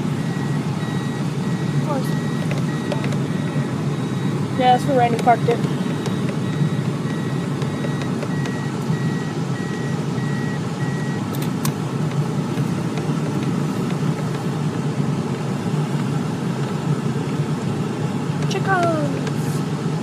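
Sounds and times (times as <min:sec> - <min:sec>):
tractor engine idling: 0:00.0 - 0:20.0
reversing alarm beeping: 0:00.1 - 0:11.3.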